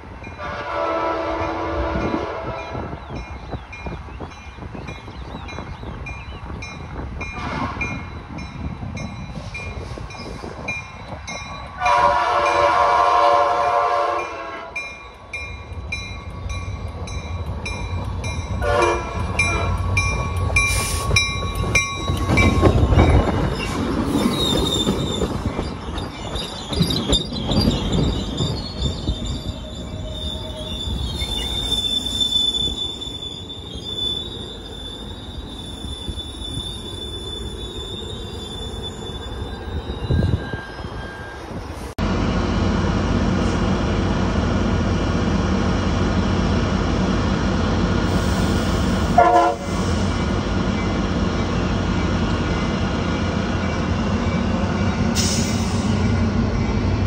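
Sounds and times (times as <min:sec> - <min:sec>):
train rumbling past: 0:00.0 - 0:57.0
locomotive horn: 0:00.4 - 0:03.0, 0:07.4 - 0:08.0, 0:11.8 - 0:14.8, 0:18.6 - 0:19.8, 0:49.1 - 0:49.9
wheel squeal: 0:22.1 - 0:41.7.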